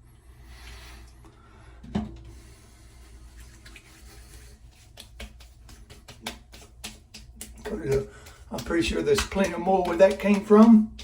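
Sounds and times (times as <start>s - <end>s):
hands rubbing skin: 2.4s - 11.0s
light pats on skin: 2.7s - 11.0s.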